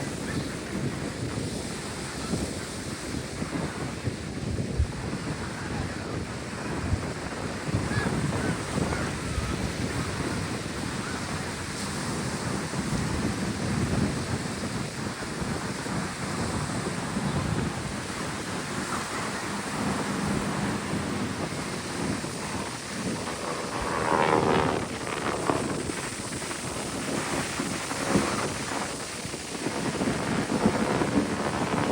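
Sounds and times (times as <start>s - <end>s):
wind buffeting microphone: 0.0s - 31.9s.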